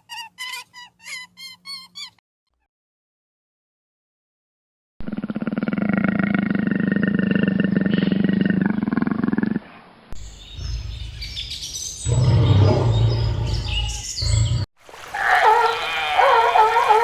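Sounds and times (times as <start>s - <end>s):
deep low animal call: 5.0s - 14.7s
birds chirping: 10.2s - 14.7s.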